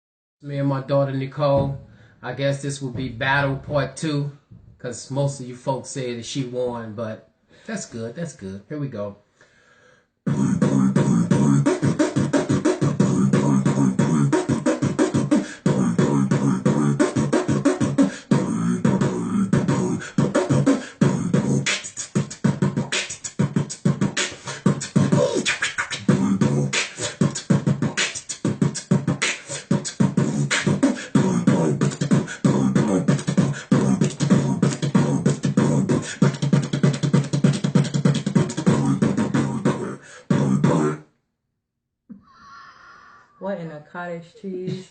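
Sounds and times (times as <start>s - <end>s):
beatboxing: 10.3s - 41.1s.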